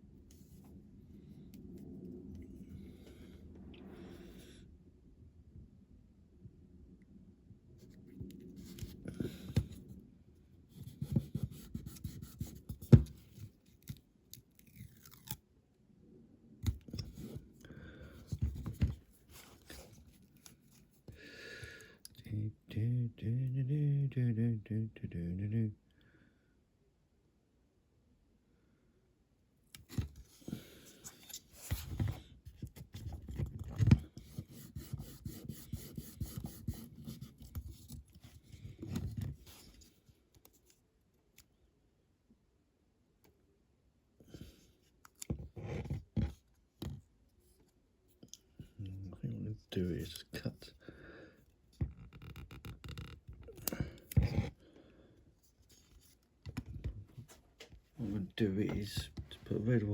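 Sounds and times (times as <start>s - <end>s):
rustling and scraping: 16.7s - 21.1s, 29.8s - 40.8s, 55.4s - 59.9s.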